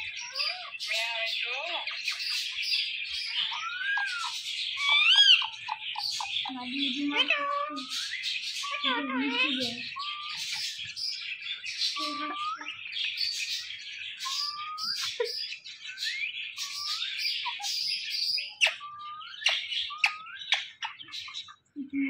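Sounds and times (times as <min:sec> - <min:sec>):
birds chirping and twittering: 0:00.0 - 0:22.0.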